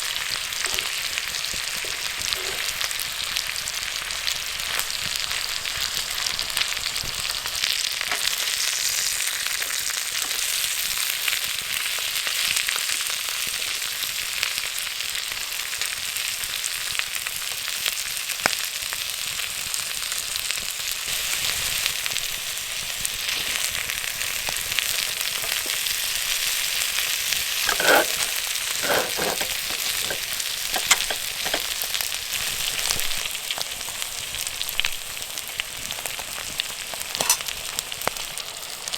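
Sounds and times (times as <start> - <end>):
rice sizzling in a pan: 0.0 - 38.9
stirring in a pan: 1.8 - 2.9, 24.9 - 26.0, 27.6 - 32.1.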